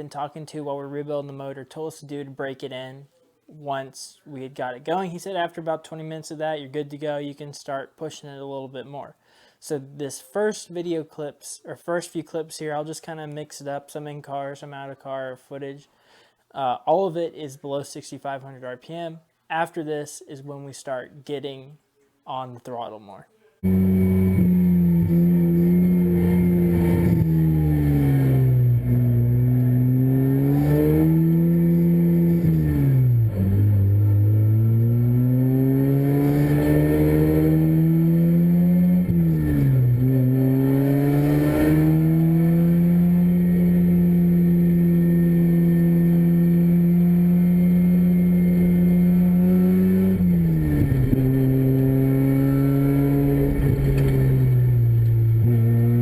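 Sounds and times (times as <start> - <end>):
rotary engine revving: 23.6 - 56.0.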